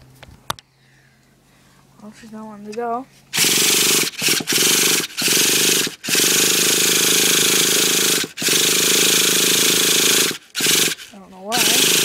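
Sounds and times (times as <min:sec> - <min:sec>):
engine starter cranking: 0:03.4 - 0:12.0.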